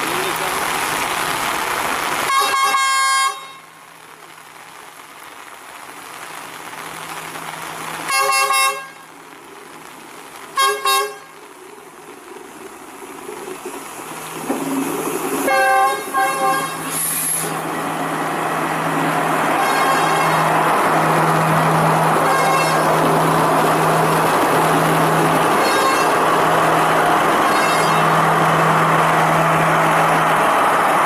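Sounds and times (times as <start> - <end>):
rain hiss: 0.0 - 31.0
train engine hum: 0.0 - 31.0
train horn blasts: 2.3 - 3.7, 8.1 - 9.0, 10.6 - 11.4, 15.5 - 17.1, 19.6 - 20.5, 22.2 - 23.0, 25.6 - 26.3, 27.4 - 28.2.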